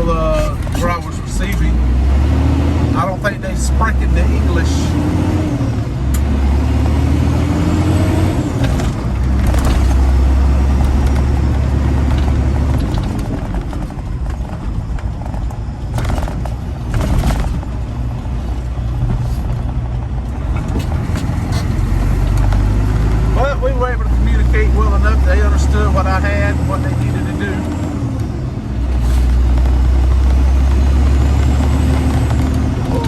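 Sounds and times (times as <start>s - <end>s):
truck diesel engine droning: 0.0s - 33.0s.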